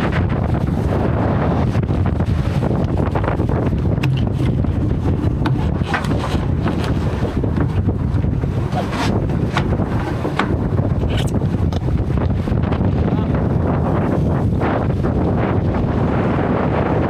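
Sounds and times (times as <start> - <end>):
water rushing past hull: 0.0 - 17.0
wind buffeting microphone: 0.0 - 17.0
sharp knocks or splashes: 2.8 - 11.9.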